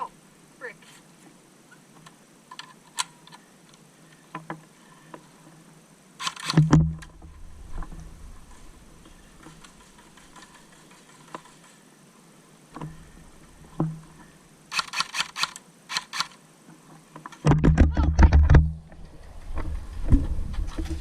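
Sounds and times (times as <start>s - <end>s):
scattered clicks and knocks: 6.2s - 8.0s, 17.2s - 21.0s
handling noise on microphone: 6.2s - 11.8s, 16.6s - 21.0s.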